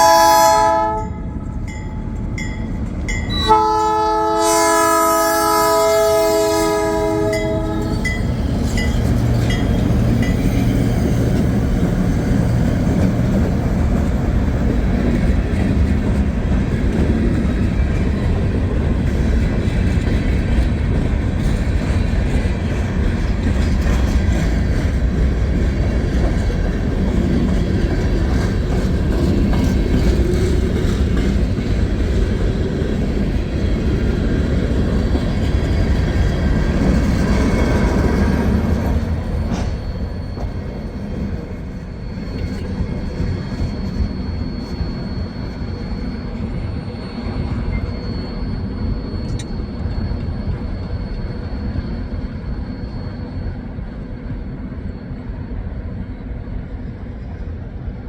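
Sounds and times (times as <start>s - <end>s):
train air horn chord: 0.0s - 1.4s, 3.4s - 8.0s.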